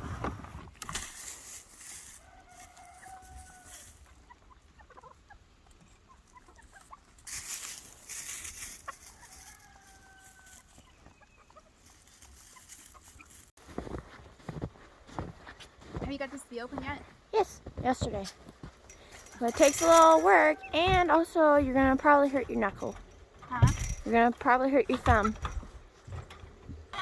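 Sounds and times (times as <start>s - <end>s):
rustling noise: 0.0s - 4.2s, 6.8s - 11.1s, 11.7s - 26.9s
chickens clucking: 1.5s - 13.5s, 18.8s - 27.0s.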